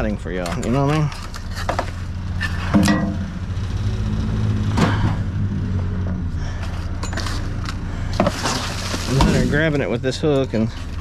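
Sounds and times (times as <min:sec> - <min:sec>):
vehicle engine running: 0:00.0 - 0:11.0
sharp metal knocks: 0:02.7 - 0:03.4.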